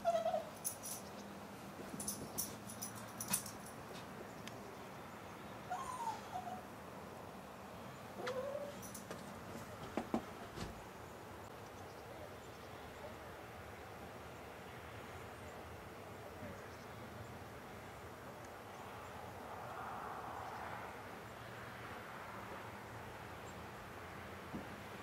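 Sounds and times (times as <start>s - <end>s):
animal whining calls: 5.7s - 6.7s.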